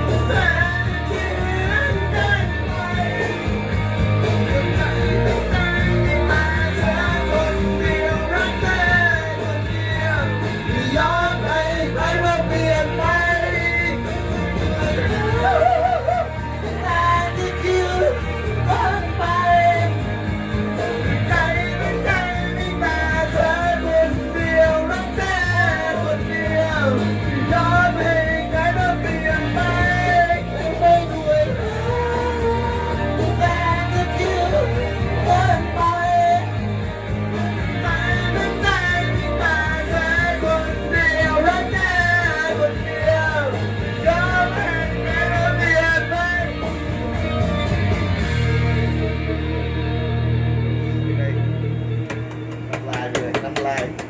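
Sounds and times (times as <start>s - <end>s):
person singing: 0.0s - 20.0s, 20.8s - 36.5s
pop band with steady beat: 0.0s - 54.0s.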